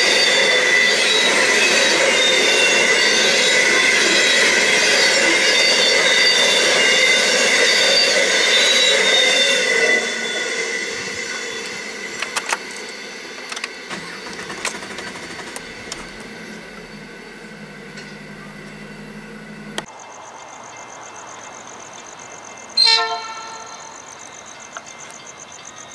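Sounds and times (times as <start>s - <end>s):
high wheel squeal: 0.0s - 19.9s, 22.8s - 24.4s
train wagons rolling over rails: 0.0s - 19.9s.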